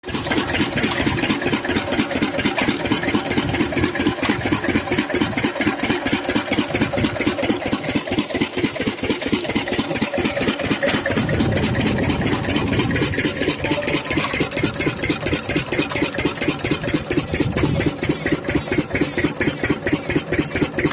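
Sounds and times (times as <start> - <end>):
diesel water pump chugging: 0.0 - 20.9.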